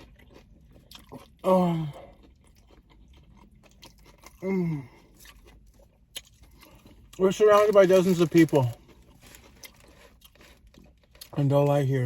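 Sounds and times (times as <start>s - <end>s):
person chewing food: 0.0s - 11.8s
person humming mmm: 4.4s - 4.9s.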